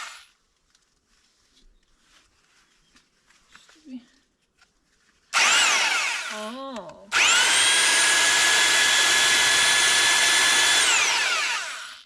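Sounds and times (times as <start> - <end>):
electric drill motor whine: 0.0 - 0.2, 5.4 - 6.4, 7.1 - 12.0.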